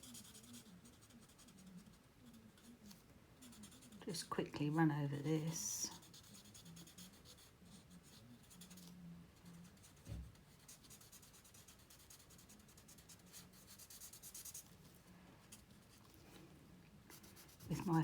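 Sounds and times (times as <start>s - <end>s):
marker nib scratching on card: 0.0s - 4.3s, 5.9s - 14.8s, 17.1s - 18.0s.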